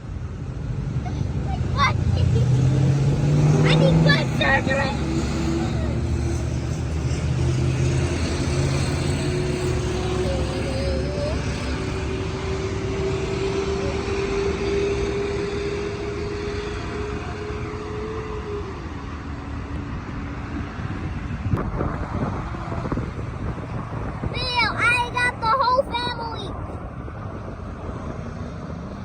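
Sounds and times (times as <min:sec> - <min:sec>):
motor vehicle passing: 0:00.4 - 0:29.0.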